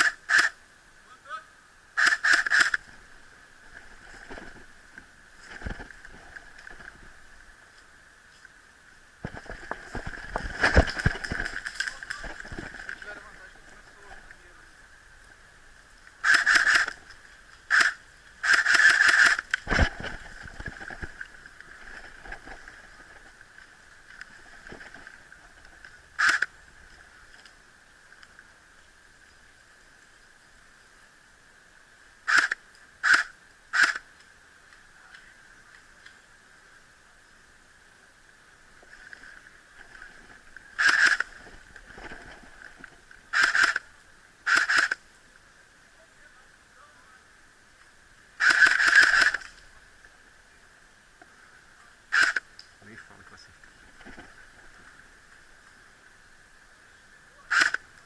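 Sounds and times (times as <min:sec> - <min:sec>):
airsoft rifle bursts: 0:00.0 - 0:00.6, 0:02.0 - 0:02.8, 0:16.2 - 0:16.9, 0:17.7 - 0:19.4, 0:26.2 - 0:26.4, 0:32.3 - 0:34.0, 0:40.8 - 0:41.3, 0:43.3 - 0:43.8, 0:48.4 - 0:49.4, 0:57.5 - 0:57.8
airsoft rifle firing bursts: 0:16.2 - 0:16.9, 0:17.7 - 0:19.4.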